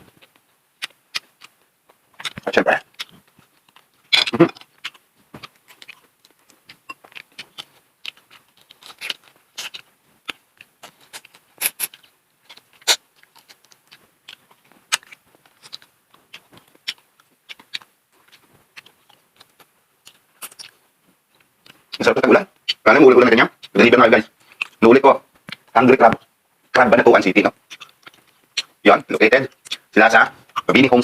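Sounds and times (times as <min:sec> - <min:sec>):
person chewing with crunches: 0:00.0 - 0:31.0.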